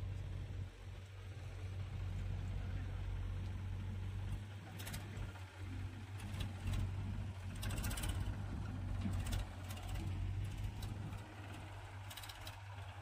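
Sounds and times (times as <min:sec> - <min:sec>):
diesel engine droning: 0:00.0 - 0:13.0
sharp metallic clatters: 0:07.6 - 0:08.3, 0:12.0 - 0:12.7.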